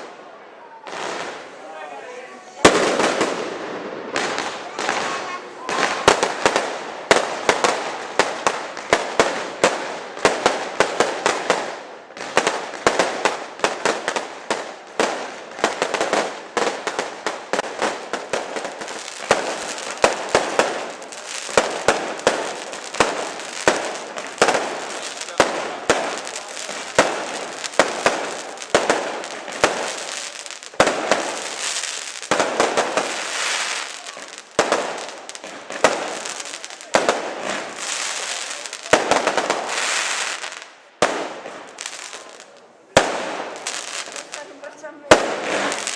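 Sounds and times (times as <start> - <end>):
firework bangs: 0.0 - 45.9
firework crackling: 0.0 - 45.9.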